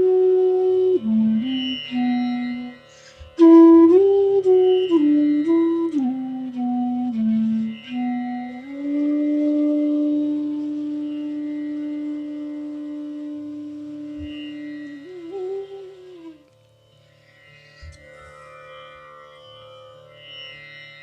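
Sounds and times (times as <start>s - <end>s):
bamboo flute note: 0.0s - 16.6s.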